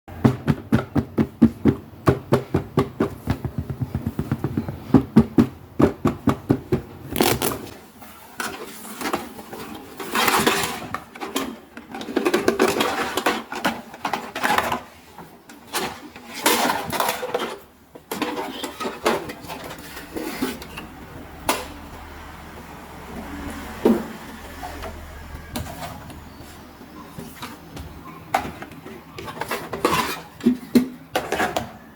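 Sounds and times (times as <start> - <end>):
packaging crinkling and rustling: 7.1 - 7.8.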